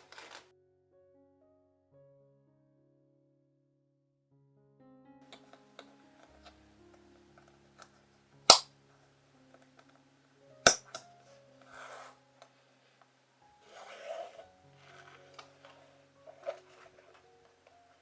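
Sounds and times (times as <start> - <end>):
rustling scrapes: 0.0 - 0.4, 11.6 - 13.0, 13.6 - 18.0.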